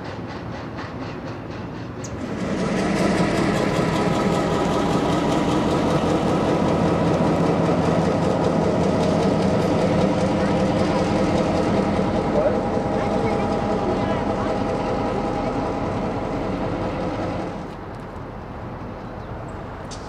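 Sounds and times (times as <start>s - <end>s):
diesel locomotive rumbling: 0.0s - 20.0s.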